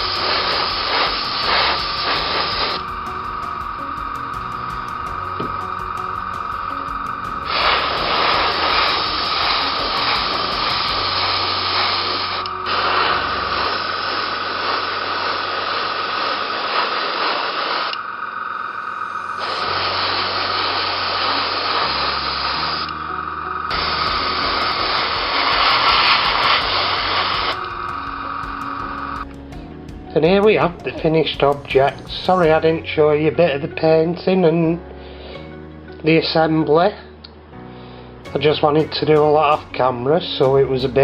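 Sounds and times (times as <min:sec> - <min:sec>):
background music: 0:00.0 - 0:15.5, 0:18.1 - 0:41.0
aerosol spray can hissing: 0:00.0 - 0:18.0, 0:19.4 - 0:23.1, 0:23.7 - 0:29.2.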